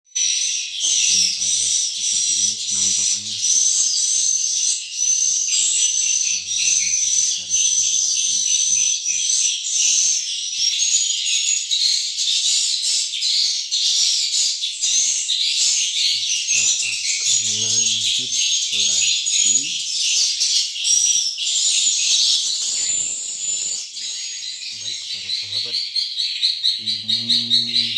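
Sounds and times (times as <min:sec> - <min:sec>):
swiftlets twittering: 0:00.8 - 0:08.8, 0:16.0 - 0:19.8.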